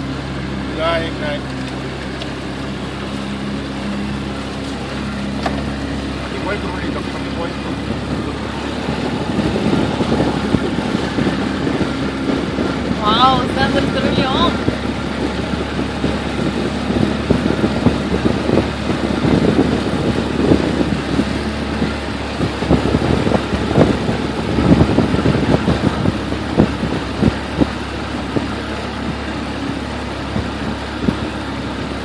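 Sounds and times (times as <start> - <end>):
motorboat engine running: 0.0 - 32.0.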